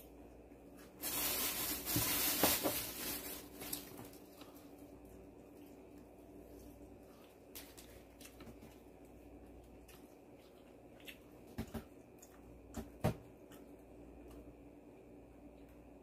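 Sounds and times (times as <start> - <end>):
low room hum: 0.0 - 16.0
crunchy chewing: 3.7 - 12.8.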